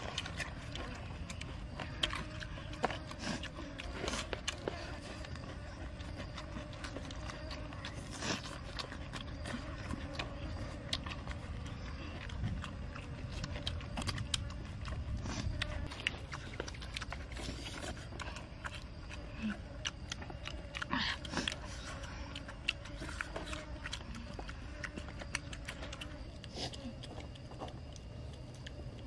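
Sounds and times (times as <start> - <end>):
wet chewing and lip-smacking: 0.0 - 29.0.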